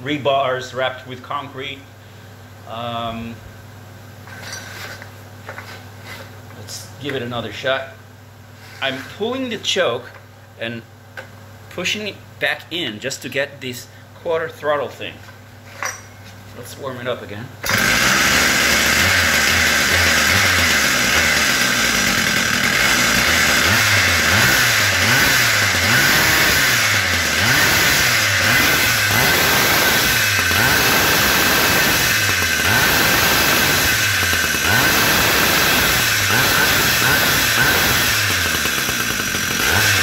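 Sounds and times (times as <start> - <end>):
two-stroke engine fast idling: 17.6 - 40.0.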